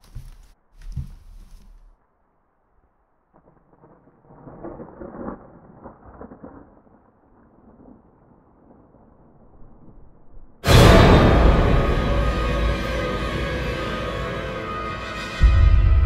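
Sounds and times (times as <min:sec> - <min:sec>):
loud scary music stinger: 0:10.6 - 0:16.0.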